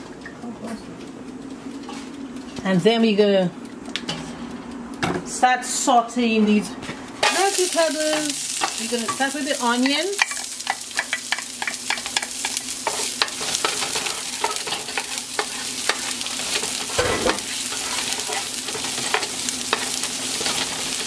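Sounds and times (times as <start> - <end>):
onions sizzling in a pot: 7.2 - 21.0.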